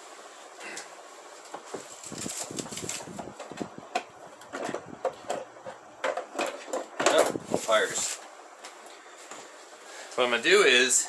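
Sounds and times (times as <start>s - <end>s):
small hard objects clattering: 1.4s - 3.5s, 6.3s - 8.2s.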